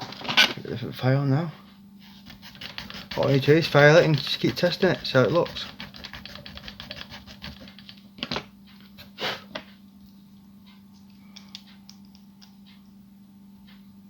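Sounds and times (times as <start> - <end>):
hand file rasping on plastic: 2.1 - 8.0.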